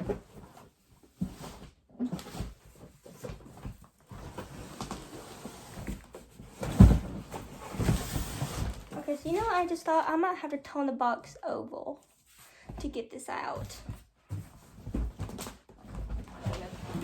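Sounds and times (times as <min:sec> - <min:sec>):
cardboard box rustling and knocking: 0:00.0 - 0:09.6, 0:13.7 - 0:17.0.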